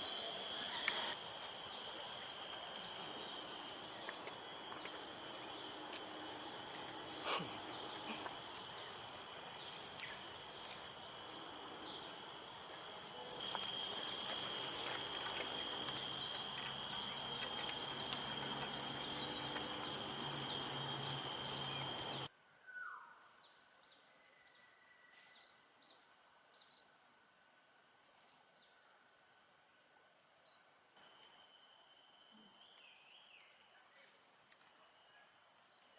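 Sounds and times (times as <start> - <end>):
insect chorus buzzing: 0.0 - 22.3, 31.0 - 35.8
faint bird chirps: 0.4 - 13.4.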